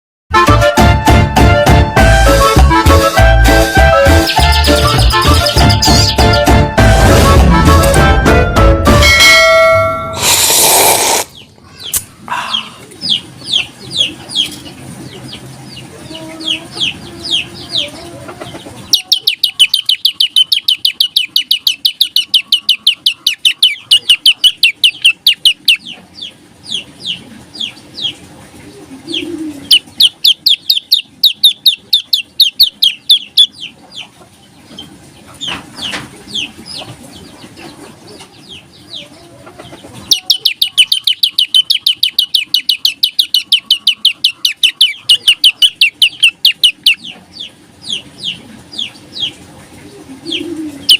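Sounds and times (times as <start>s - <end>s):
songbird calling: 18.8s - 28.2s, 29.1s - 34.1s, 39.8s - 50.9s.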